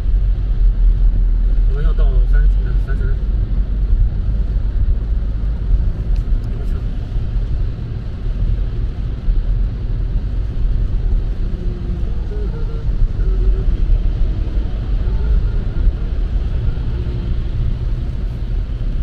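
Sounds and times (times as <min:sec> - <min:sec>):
road and tyre noise in car: 0:00.0 - 0:19.0.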